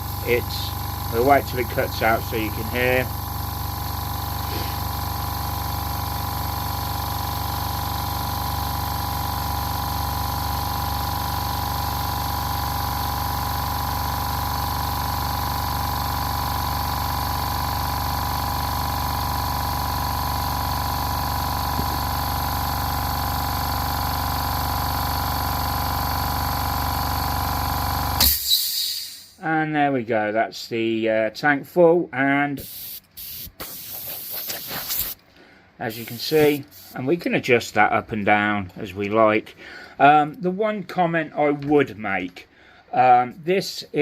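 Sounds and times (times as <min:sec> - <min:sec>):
air compressor humming: 0:00.0 - 0:29.4, 0:32.6 - 0:37.0.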